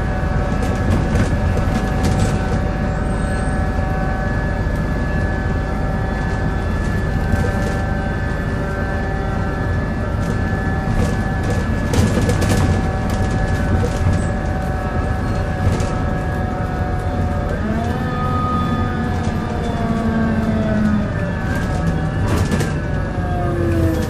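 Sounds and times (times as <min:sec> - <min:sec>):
bus drivetrain groaning whine: 0:00.0 - 0:24.0
knocks and rattles: 0:10.2 - 0:14.8.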